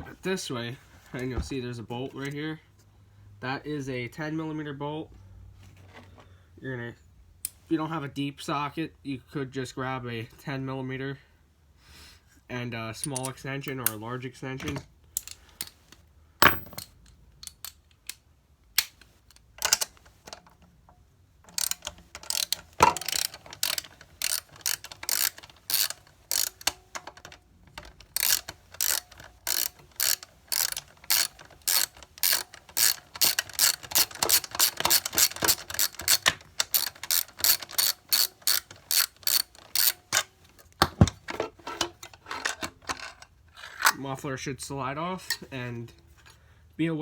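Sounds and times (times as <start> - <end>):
socket ratchet clicking: 21.5 - 41.0.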